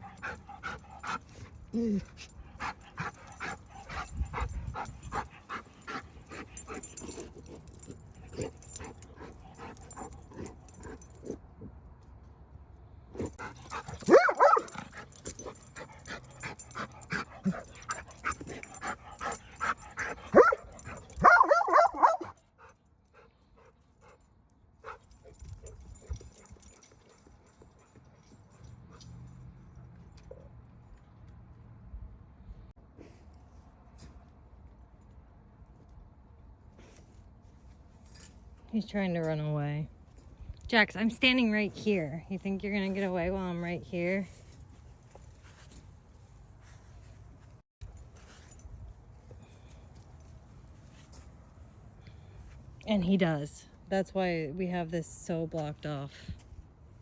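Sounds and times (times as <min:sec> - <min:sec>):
dogs barking and yipping: 0:00.0 - 0:11.2, 0:13.2 - 0:22.4.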